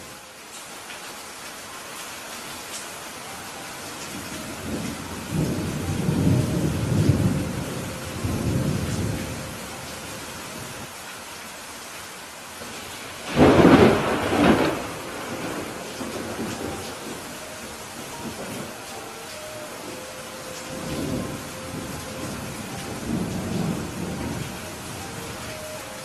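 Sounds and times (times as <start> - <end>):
steady rain: 0.0 - 26.0
rolling thunder rumble: 4.2 - 9.8, 13.2 - 18.9, 19.8 - 25.8
sharp thunderclap: 13.3 - 17.0.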